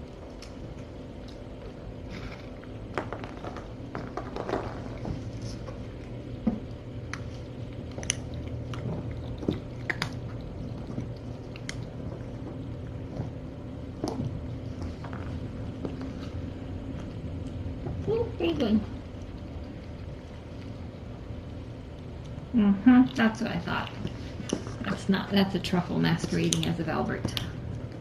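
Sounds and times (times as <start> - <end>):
kittens crunching dry kibble: 0.0 - 18.4
low hum: 0.0 - 28.0.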